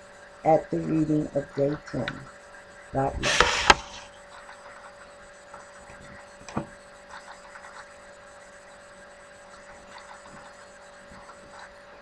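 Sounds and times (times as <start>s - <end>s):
faint hum: 0.0s - 4.2s
sharp click: 3.2s - 4.1s.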